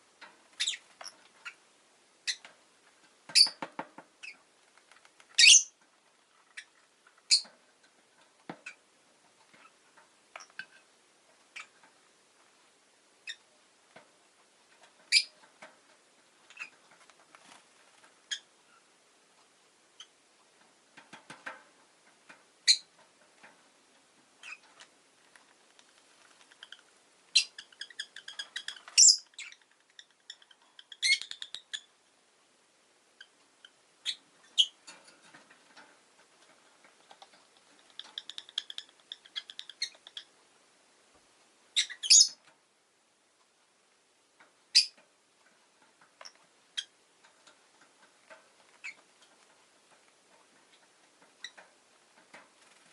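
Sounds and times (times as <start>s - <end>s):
lovebird chirping: 0.5s - 1.6s, 2.2s - 2.4s, 4.2s - 4.4s, 5.3s - 5.8s, 7.3s - 7.5s, 13.2s - 13.4s, 15.1s - 15.3s, 22.6s - 22.9s, 24.4s - 24.6s, 26.4s - 31.9s, 33.2s - 34.8s, 37.8s - 40.3s, 41.8s - 42.4s, 44.7s - 45.0s, 48.8s - 49.0s
faint clicks and rustles: 2.4s - 13.0s, 13.6s - 31.8s, 33.2s - 40.4s, 43.3s - 52.9s.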